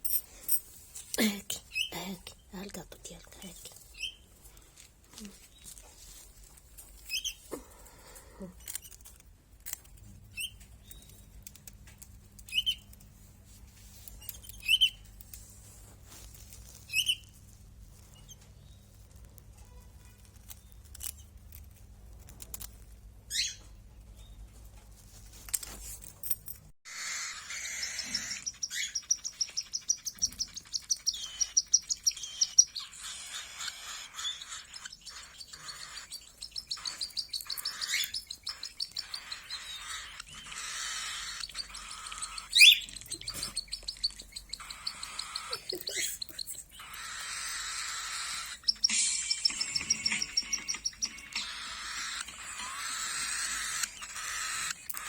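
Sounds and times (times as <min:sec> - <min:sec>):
canary singing trills: 0:01.2 - 0:02.6, 0:03.3 - 0:04.3, 0:07.0 - 0:07.5, 0:12.4 - 0:13.0, 0:14.2 - 0:15.1, 0:16.8 - 0:17.4, 0:23.3 - 0:24.4, 0:26.9 - 0:55.0.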